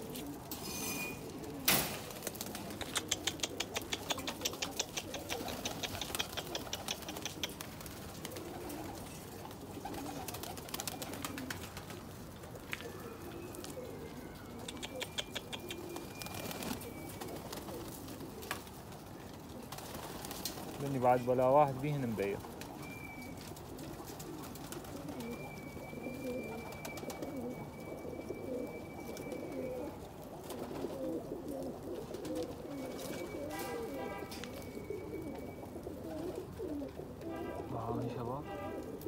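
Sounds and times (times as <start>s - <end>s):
pigeons cooing: 0.0s - 39.0s
quick run of clicks: 2.7s - 7.7s.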